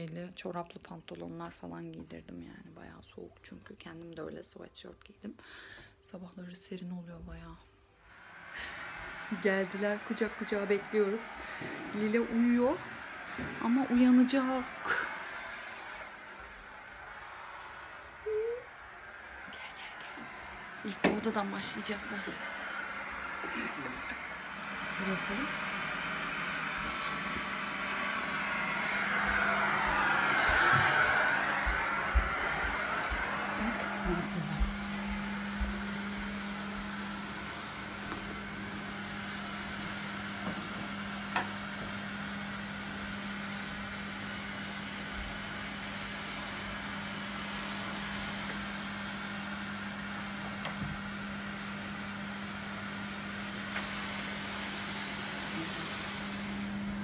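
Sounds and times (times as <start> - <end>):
carpet cleaning machine humming: 8.1 - 57.0.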